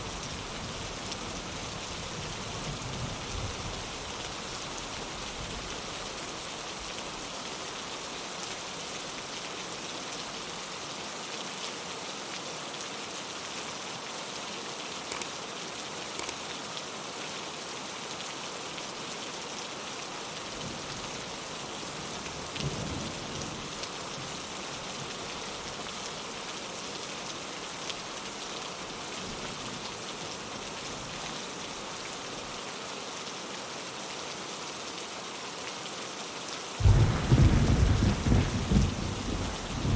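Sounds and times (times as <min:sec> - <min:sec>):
rain on a window pane: 0:00.0 - 0:39.9
raindrop ticks: 0:16.2 - 0:16.4
distant thunder rumble: 0:36.8 - 0:39.9.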